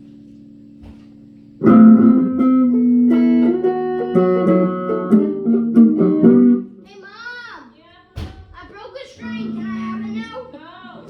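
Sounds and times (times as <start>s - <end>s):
guitar plucked notes and chords: 1.6s - 6.8s, 9.2s - 10.5s.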